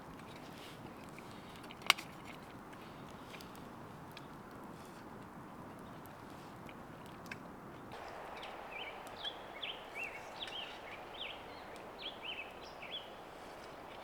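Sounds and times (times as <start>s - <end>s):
faint clicks: 0.1s - 14.0s
songbird chirping: 7.9s - 14.0s
steady background hiss: 7.9s - 14.0s.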